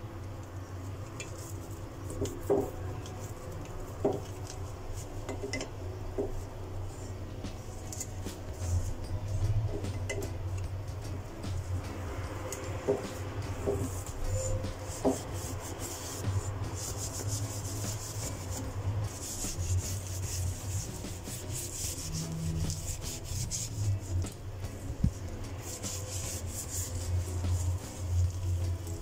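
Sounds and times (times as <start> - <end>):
irregular rubbing or scraping: 0.8 - 5.6, 6.2 - 10.2, 11.1 - 29.0.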